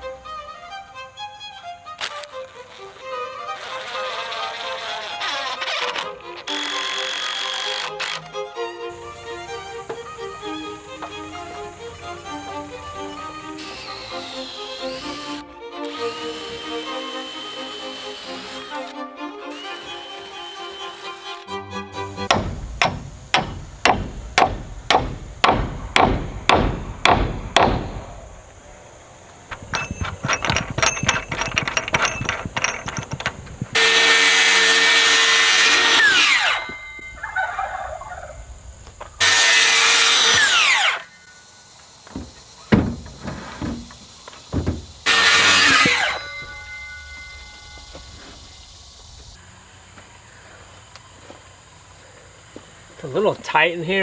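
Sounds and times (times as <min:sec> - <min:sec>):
power drill driving screws: 0:05.6 - 0:08.3, 0:39.2 - 0:41.1, 0:45.1 - 0:46.2
hammer blows: 0:22.2 - 0:28.7, 0:29.5 - 0:37.4.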